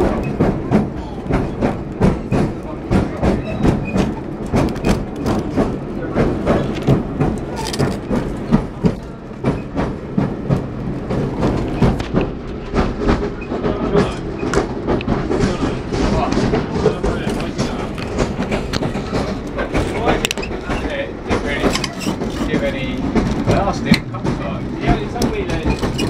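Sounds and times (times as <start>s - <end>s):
train wheels clattering: 0.0s - 26.0s.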